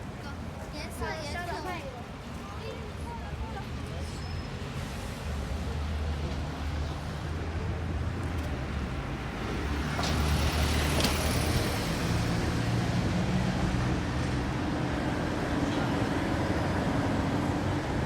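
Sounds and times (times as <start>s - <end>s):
road noise: 0.0s - 18.0s
vehicle engine rumble: 2.9s - 18.0s.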